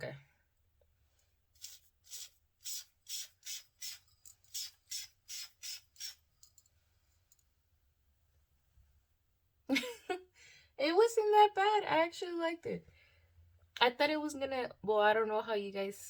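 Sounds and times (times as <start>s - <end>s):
spray bottle quick sprays: 1.6s - 6.2s.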